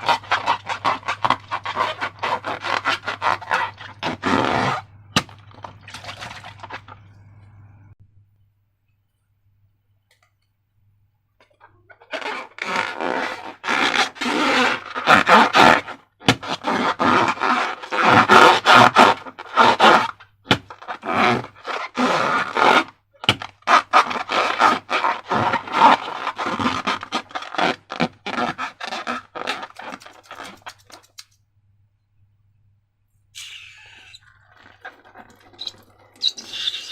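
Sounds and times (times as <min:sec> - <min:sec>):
thick slime scraped and squished: 0:00.0 - 0:07.0, 0:11.9 - 0:31.2.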